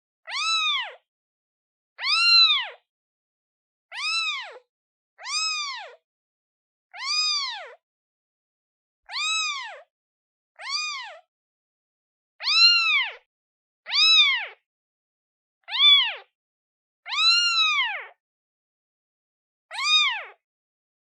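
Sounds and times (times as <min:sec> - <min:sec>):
kitten meowing: 0:00.3 - 0:01.0, 0:02.0 - 0:02.8, 0:03.9 - 0:06.0, 0:06.9 - 0:07.8, 0:09.1 - 0:09.9, 0:10.6 - 0:11.2, 0:12.4 - 0:13.3, 0:13.9 - 0:14.6, 0:15.6 - 0:16.3, 0:17.1 - 0:18.2, 0:19.7 - 0:20.4.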